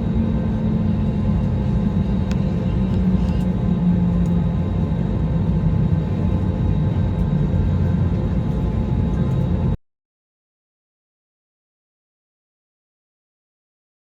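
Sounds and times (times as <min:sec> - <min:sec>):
jet airliner rumble: 0:00.0 - 0:09.8.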